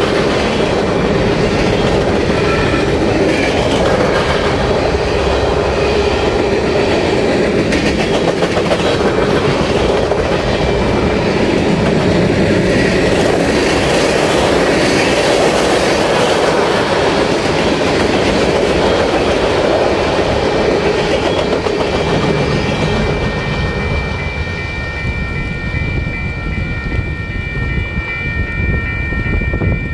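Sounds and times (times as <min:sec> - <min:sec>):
wheels rumbling on rails: 0:00.0 - 0:29.9
wheels clacking over rail joints: 0:01.2 - 0:22.9.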